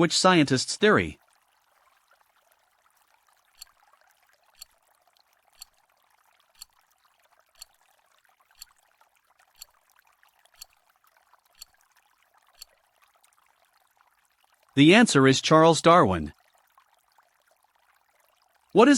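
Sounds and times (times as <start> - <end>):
timer ticking: 3.6 - 3.8, 4.6 - 4.8, 5.6 - 5.8, 6.5 - 6.8, 7.6 - 7.8, 8.6 - 8.8, 9.6 - 9.8, 10.6 - 10.8, 11.6 - 11.8.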